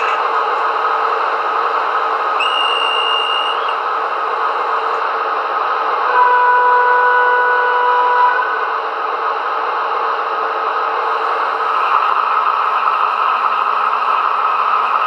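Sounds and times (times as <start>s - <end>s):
model train diesel engine noise: 0.0s - 15.0s
short high whistle: 2.4s - 3.8s
two-note train horn: 6.1s - 8.6s.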